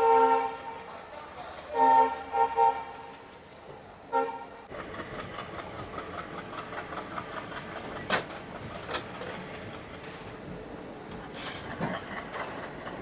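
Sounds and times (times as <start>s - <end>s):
train horn toot: 0.0s - 0.9s, 1.7s - 3.1s, 4.1s - 4.6s
rail noise with rhythmic clicking: 0.0s - 13.0s.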